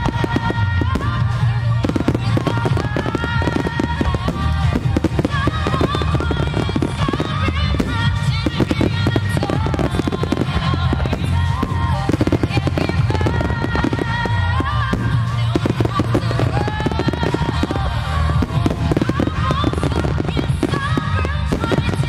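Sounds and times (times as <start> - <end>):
fireworks bursting and crackling: 0.0 - 22.0
loud music with melody: 0.0 - 22.0.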